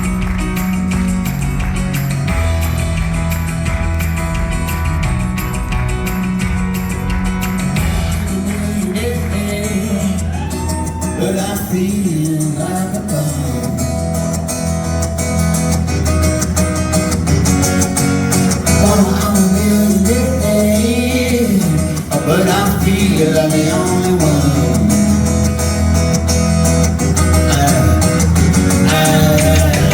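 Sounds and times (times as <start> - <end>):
acoustic guitars: 0.0 - 29.9
bass line: 0.0 - 29.9
man singing: 8.0 - 14.2, 18.6 - 25.5, 27.3 - 29.9.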